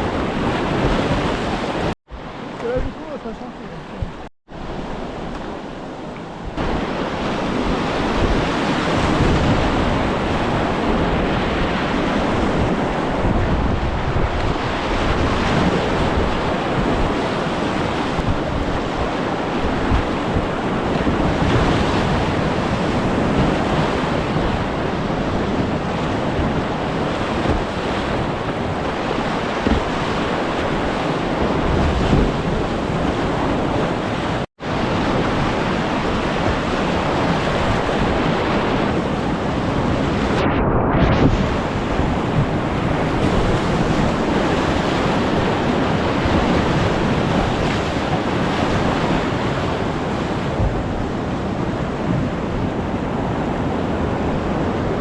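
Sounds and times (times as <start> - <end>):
wind buffeting microphone: 0.0 - 55.0
whitewater rushing: 13.8 - 40.4.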